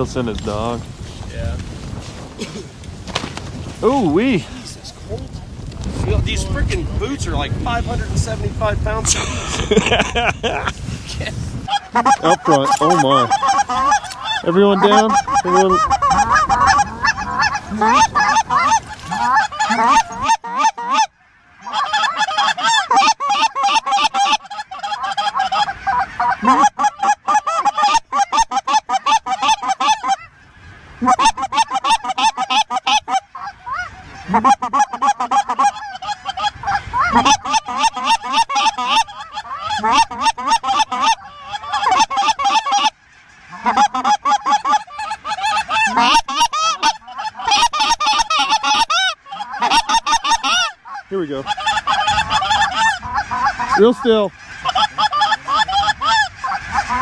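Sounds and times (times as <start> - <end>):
geese honking: 11.6 - 57.0.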